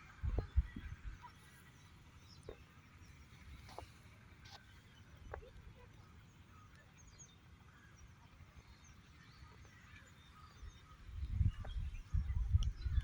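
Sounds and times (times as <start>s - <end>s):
wind buffeting microphone: 0.0s - 1.3s, 11.0s - 13.0s.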